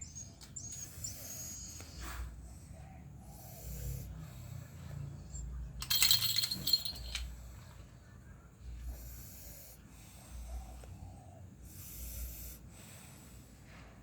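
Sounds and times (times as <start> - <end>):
dog snoring: 3.2 - 4.7
clinking jingling rattle: 5.8 - 7.4.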